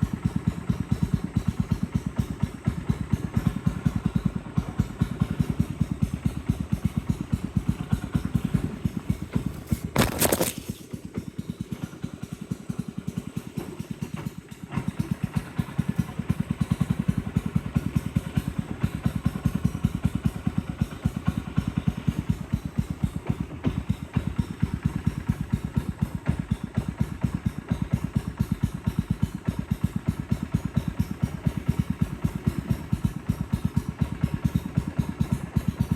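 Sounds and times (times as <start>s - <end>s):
boat motor running: 0.0s - 12.4s.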